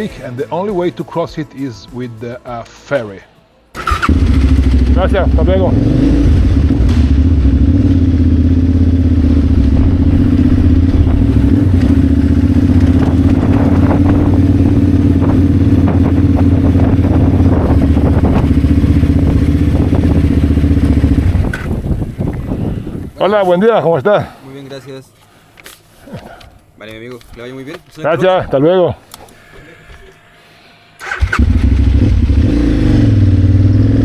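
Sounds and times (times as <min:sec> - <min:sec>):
motorcycle engine running: 0:03.8 - 0:23.1, 0:31.0 - 0:34.0.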